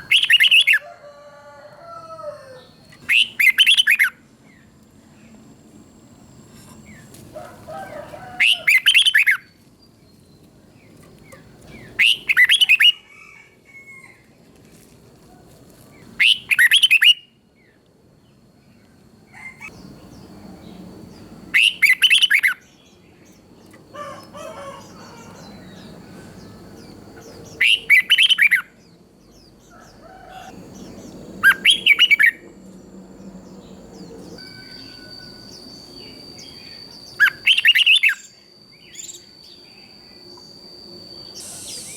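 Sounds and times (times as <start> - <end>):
bird singing: 0.0 - 13.3, 16.0 - 41.9
faint high whine: 1.7 - 13.1, 30.5 - 41.9.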